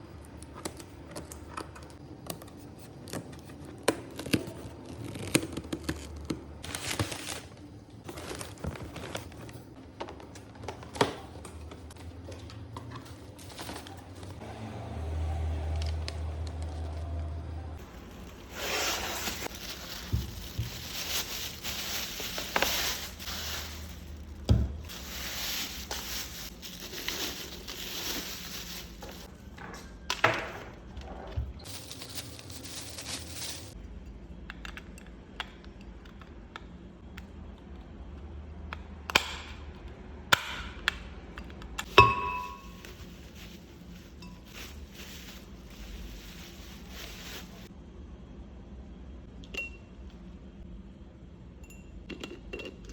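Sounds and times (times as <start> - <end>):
packaging rustling: 17.8 - 29.3, 41.9 - 47.7.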